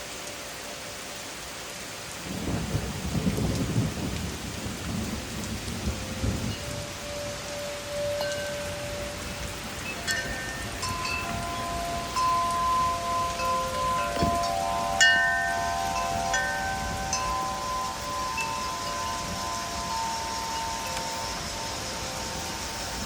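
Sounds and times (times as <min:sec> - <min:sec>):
rain and wind hiss: 0:00.0 - 0:23.0
wind chimes ringing: 0:06.2 - 0:23.0.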